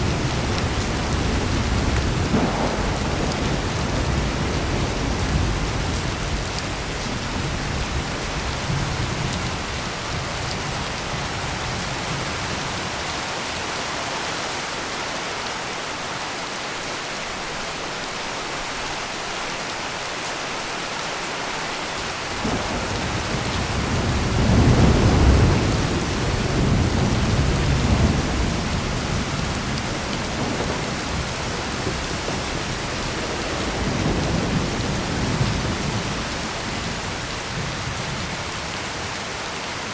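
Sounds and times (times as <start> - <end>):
rolling thunder: 0.0 - 13.0, 22.3 - 39.1
heavy rain: 0.0 - 39.9.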